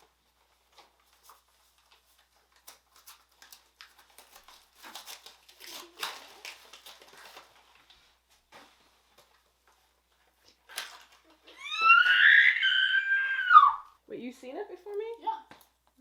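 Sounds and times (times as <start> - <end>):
wrapping paper crinkling and tearing: 0.0 - 8.0.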